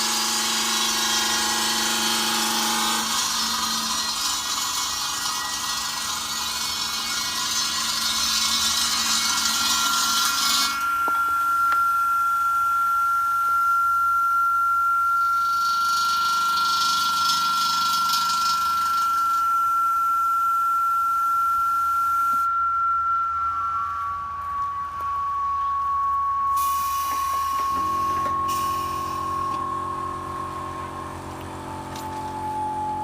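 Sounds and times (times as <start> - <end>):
saw blade grinding stone: 0.0 - 11.7, 15.4 - 19.5
steady high whine: 0.0 - 33.0.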